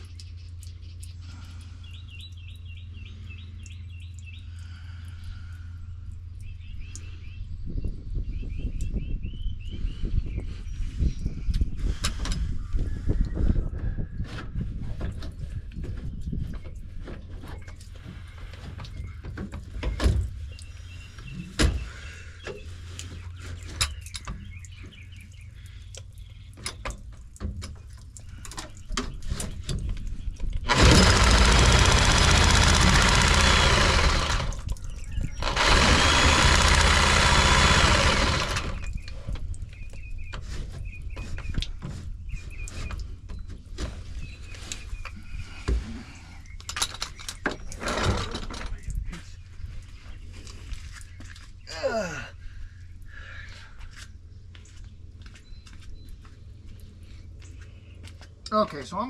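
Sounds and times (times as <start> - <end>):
knocks and clicks of saw: 30.7 - 34.7, 35.4 - 38.9
reciprocating saw cutting pipe: 30.7 - 34.7, 35.4 - 38.9.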